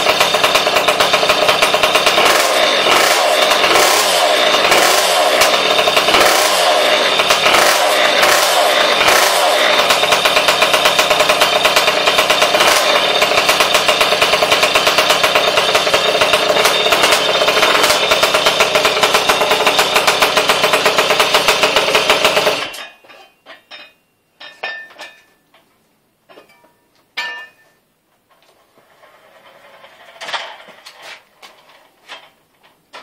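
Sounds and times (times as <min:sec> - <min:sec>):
small engine running: 0:00.0 - 0:22.8.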